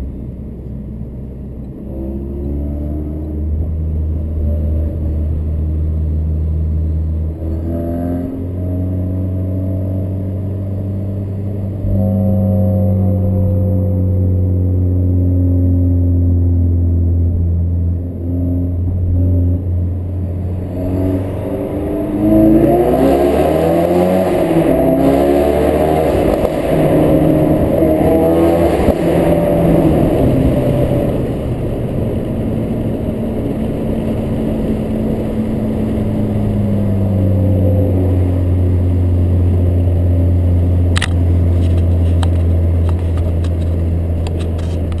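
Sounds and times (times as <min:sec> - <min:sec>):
car engine revving: 0:00.0 - 0:45.0
exhaust crack: 0:03.2 - 0:45.0.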